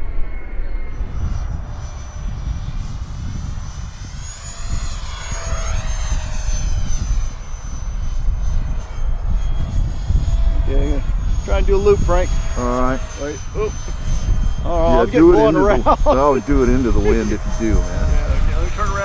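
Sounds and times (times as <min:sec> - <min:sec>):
electric ducted fan whine: 0:01.0 - 0:19.0
wind buffeting microphone: 0:01.0 - 0:19.0.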